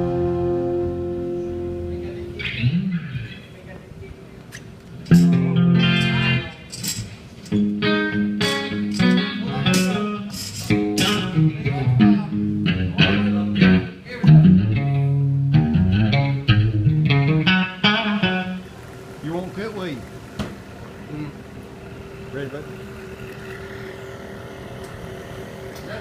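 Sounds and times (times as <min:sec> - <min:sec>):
guitar picked notes and chords: 0:00.0 - 0:03.4, 0:05.1 - 0:18.9.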